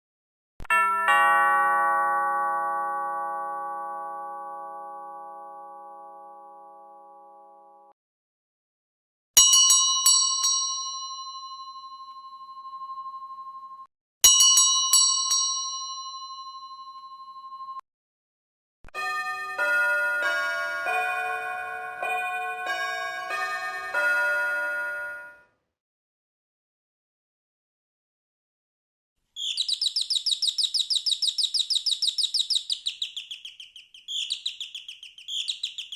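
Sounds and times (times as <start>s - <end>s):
metal doorbell ringing: 9.4s - 17.8s.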